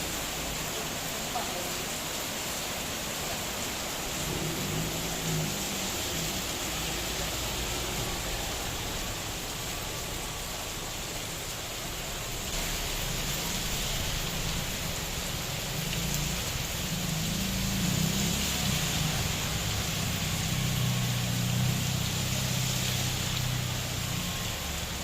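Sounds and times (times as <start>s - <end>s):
steady rain falling: 0.0s - 25.0s
low rumble: 4.2s - 9.6s.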